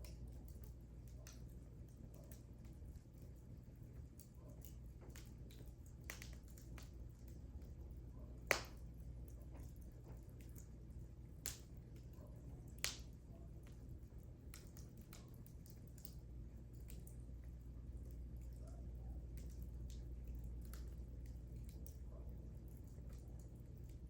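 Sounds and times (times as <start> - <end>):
low rumble of flames: 0.0 - 24.0
wood fire crackling: 0.0 - 24.0
loud fire pops: 8.5 - 8.8.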